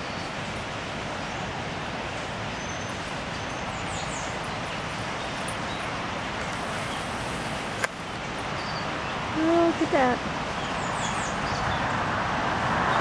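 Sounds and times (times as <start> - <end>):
steady outdoor rushing noise: 0.0 - 13.0
small birds chirping: 6.5 - 7.6, 8.5 - 11.9.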